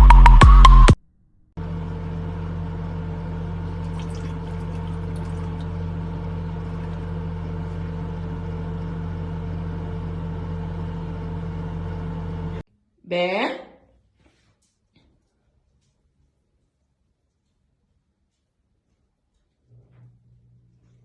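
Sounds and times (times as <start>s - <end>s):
steady low hum: 1.6s - 12.6s.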